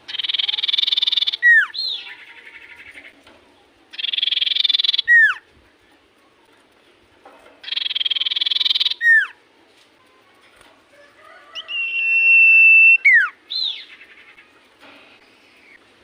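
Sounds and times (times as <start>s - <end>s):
bird singing buzzing trill: 0.1s - 2.6s, 4.0s - 5.4s, 7.6s - 9.4s.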